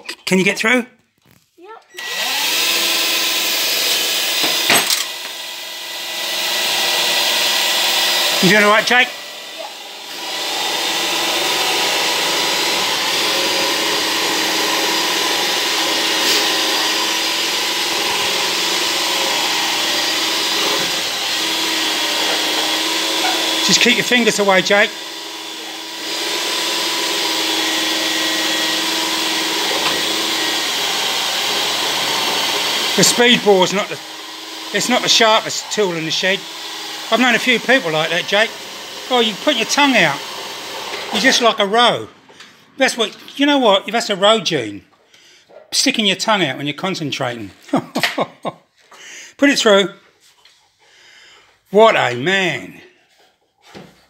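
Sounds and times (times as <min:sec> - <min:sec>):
power drill boring into wood: 0:01.9 - 0:41.9.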